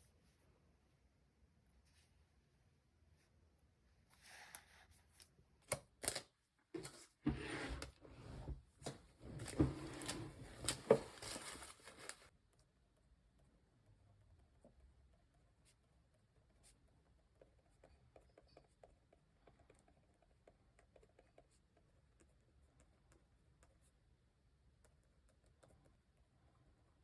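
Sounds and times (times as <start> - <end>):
paper and stationery handling: 9.2 - 12.3.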